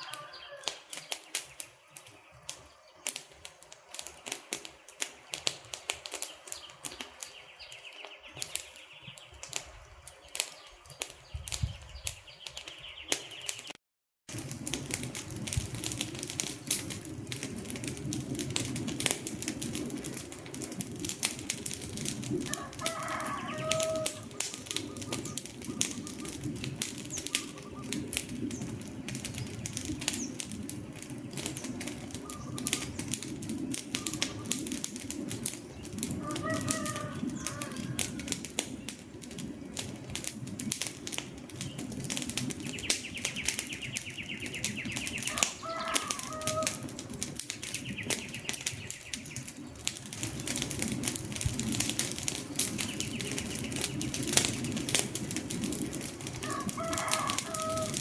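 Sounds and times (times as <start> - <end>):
bird calls: 0.0 - 3.5, 4.7 - 13.8, 22.5 - 34.8, 35.6 - 38.9, 42.6 - 47.0, 47.6 - 49.8, 52.4 - 54.2
wood fire crackling and popping: 0.0 - 58.0.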